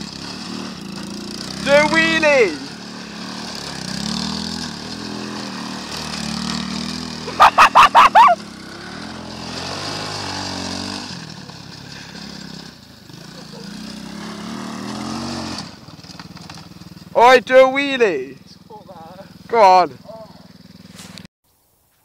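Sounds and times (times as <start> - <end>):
quad bike engine running: 0.0 - 21.3
quick voice sounds: 7.3 - 8.4.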